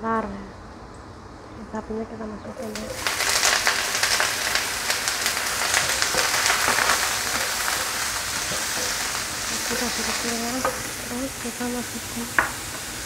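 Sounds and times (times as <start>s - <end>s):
beef sizzling in hot oil: 2.6s - 13.0s
spatula stirring a wok: 2.6s - 13.0s.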